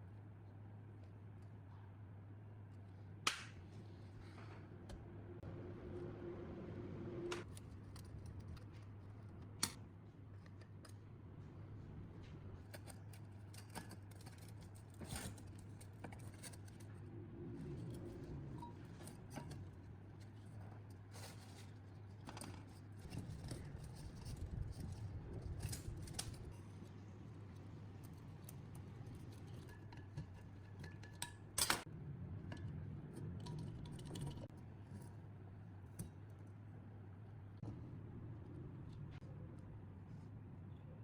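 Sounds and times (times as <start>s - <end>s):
low hum: 4.0s - 8.1s.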